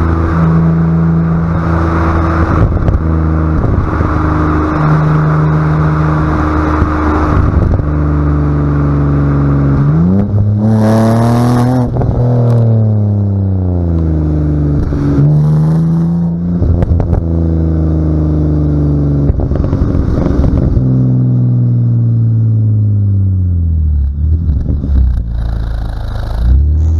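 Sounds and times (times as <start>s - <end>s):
car engine accelerating: 0.0s - 26.9s.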